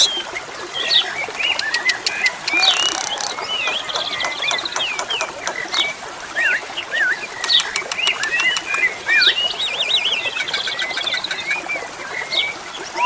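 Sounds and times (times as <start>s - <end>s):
bird clicks and chatters: 0.0s - 0.2s, 0.8s - 6.5s, 7.2s - 9.5s.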